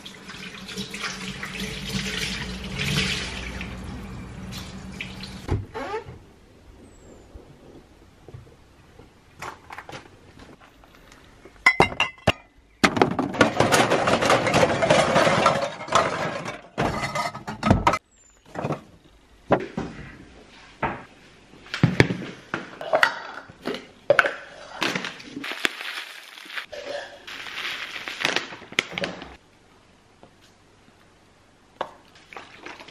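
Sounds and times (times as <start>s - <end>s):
dishes and glassware clinking: 11.6s - 12.6s.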